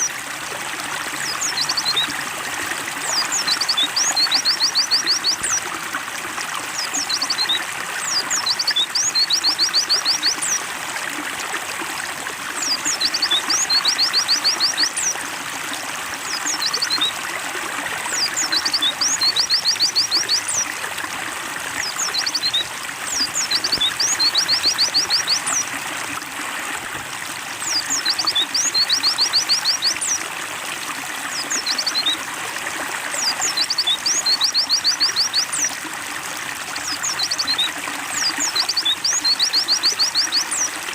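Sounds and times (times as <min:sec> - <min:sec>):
water trickling: 0:00.0 - 0:40.9
bird chirping rapidly: 0:21.8 - 0:25.7.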